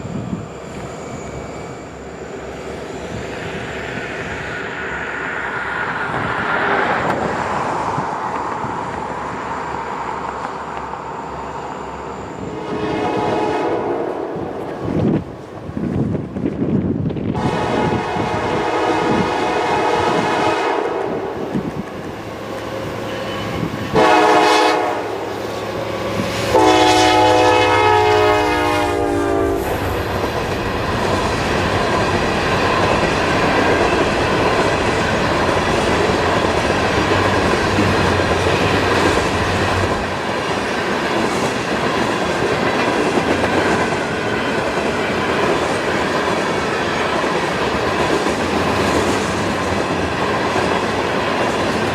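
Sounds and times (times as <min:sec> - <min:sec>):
locomotive air horn blasts: 0:12.5 - 0:14.3, 0:17.4 - 0:21.2, 0:23.4 - 0:29.6
train wheels clattering on rails: 0:29.6 - 0:51.9.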